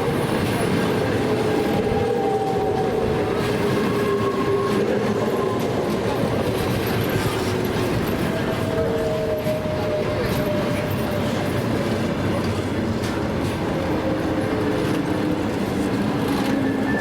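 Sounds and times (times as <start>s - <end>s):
train wheels clicking on rails: 0.0s - 17.0s.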